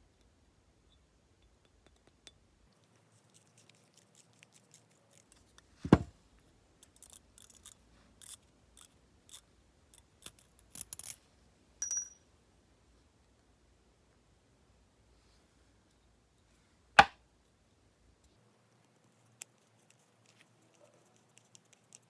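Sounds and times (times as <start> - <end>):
metallic ping: 11.8 - 12.2.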